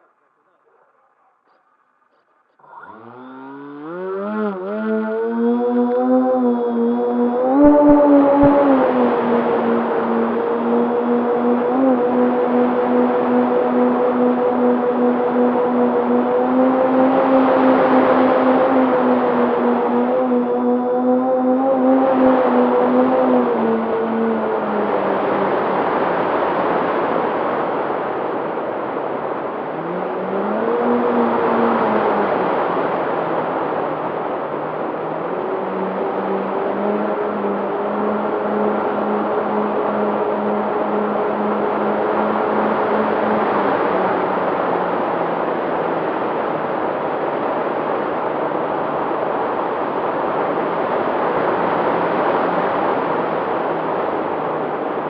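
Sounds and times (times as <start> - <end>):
low droning tones: 0.0 - 55.0
held tones changing pitch: 2.6 - 24.4
engine running: 2.6 - 26.3, 29.5 - 46.7.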